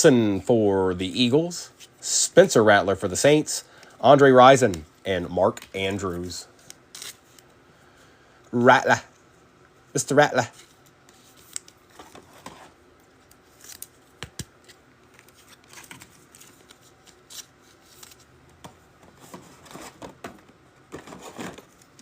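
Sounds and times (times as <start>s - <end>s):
trading cards and wrappers rustling: 10.4s - 22.0s.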